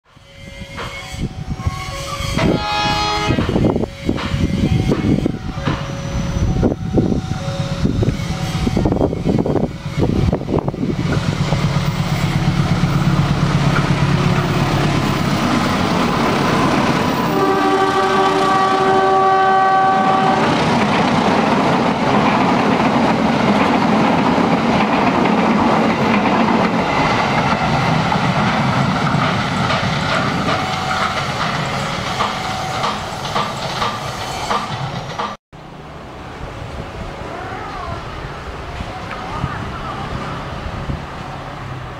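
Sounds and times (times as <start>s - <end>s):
multi-tone train horn: 0.1s - 10.8s, 16.3s - 20.6s
locomotive engine humming: 0.3s - 41.9s
wheels clattering over rails: 20.5s - 35.4s.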